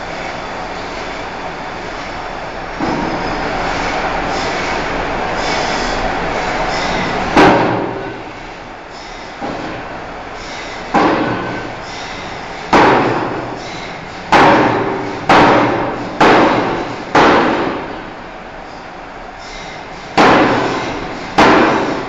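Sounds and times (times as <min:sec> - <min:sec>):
forging hammer striking steel: 0:02.8 - 0:03.4, 0:07.4 - 0:08.2, 0:10.9 - 0:11.7, 0:12.7 - 0:18.0, 0:20.2 - 0:22.0.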